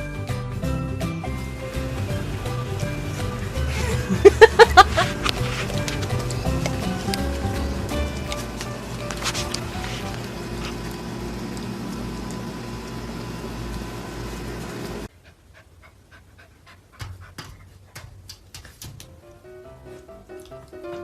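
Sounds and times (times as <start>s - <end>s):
loud steady hum: 1.3s - 15.1s
puppy panting: 2.8s - 10.8s, 15.1s - 18.9s, 19.9s - 21.0s.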